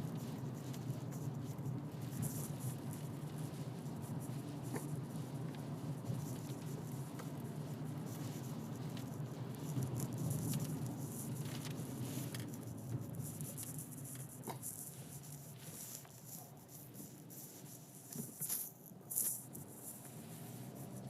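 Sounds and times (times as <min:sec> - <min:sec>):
car road and engine rumble: 0:00.0 - 0:21.0
rain pattering on car: 0:00.1 - 0:15.7.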